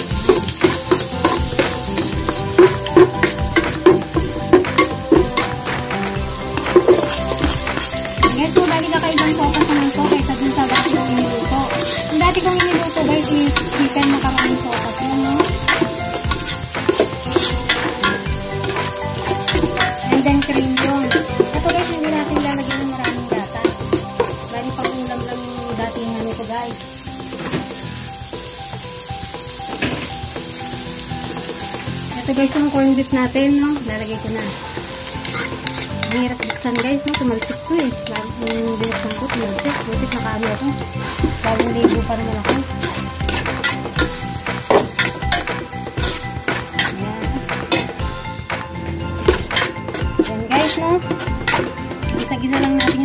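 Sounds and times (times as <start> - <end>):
garlic and onion sizzling in oil: 0.0 - 53.0
spatula scraping pot bottom: 0.2 - 24.3, 35.2 - 48.2, 49.1 - 53.0.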